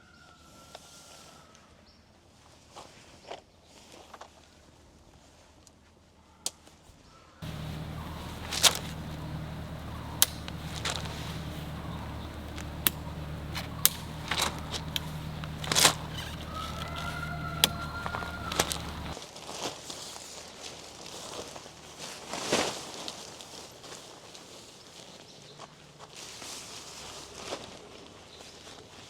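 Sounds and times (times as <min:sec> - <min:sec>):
diesel engine running: 0:07.4 - 0:19.2
sharp clicks and knocks: 0:07.4 - 0:19.2.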